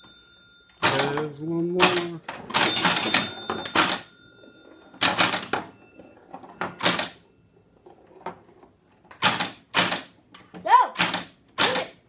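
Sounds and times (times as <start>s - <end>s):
pinball machine mechanical clacks: 0.8s - 7.3s, 9.1s - 10.2s.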